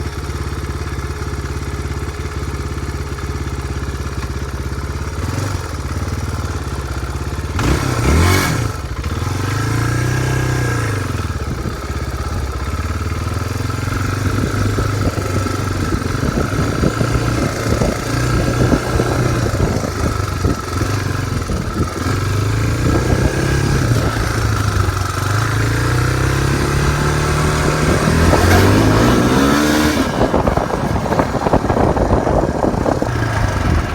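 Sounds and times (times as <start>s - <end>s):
dirt bike engine revving: 7.4s - 33.9s.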